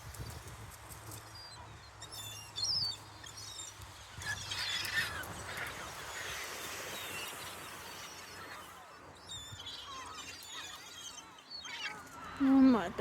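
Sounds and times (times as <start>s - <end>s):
gulls calling: 2.8s - 13.0s.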